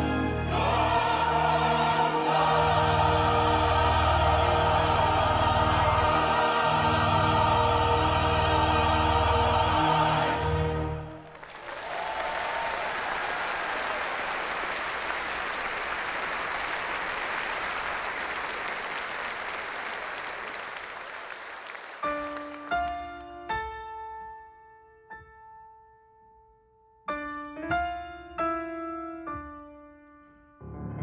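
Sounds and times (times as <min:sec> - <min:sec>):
audience applause: 0:00.6 - 0:23.2
slow piano notes and chords: 0:22.0 - 0:31.0.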